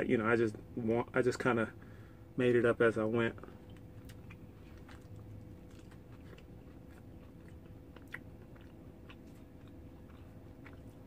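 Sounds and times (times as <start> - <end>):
person chewing crunchy food: 3.4 - 11.0.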